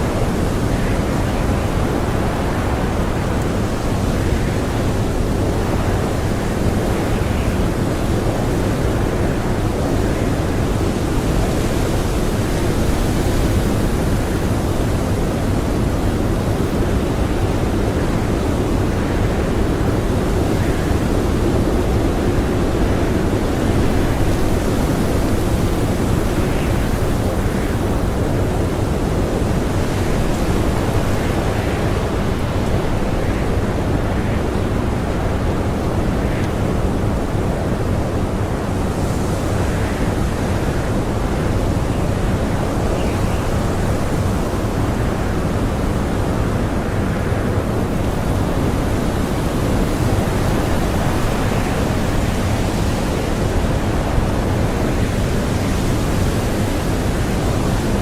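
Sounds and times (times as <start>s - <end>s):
blizzard wind howling: 0.0s - 58.0s.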